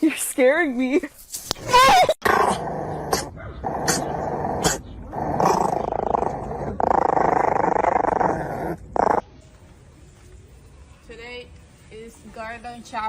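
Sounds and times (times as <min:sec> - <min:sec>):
dog growling: 0:02.2 - 0:09.2.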